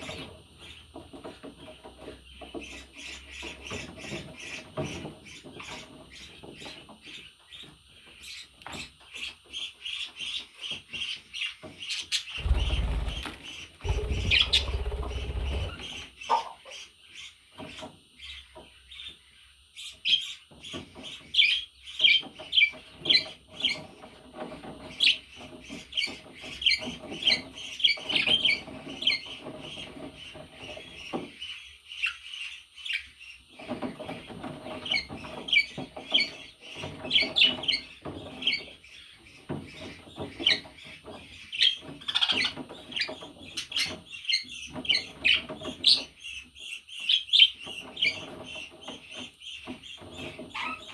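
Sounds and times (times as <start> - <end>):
budgerigar chirping and warbling: 12.4 - 16.5.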